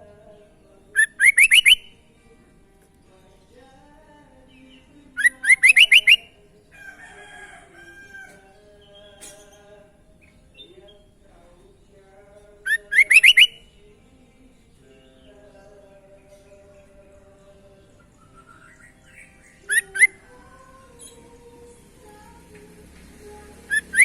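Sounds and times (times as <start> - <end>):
bird calling rising notes: 1.0 - 1.9, 5.2 - 6.3, 12.7 - 13.7, 18.1 - 22.4, 23.2 - 24.0.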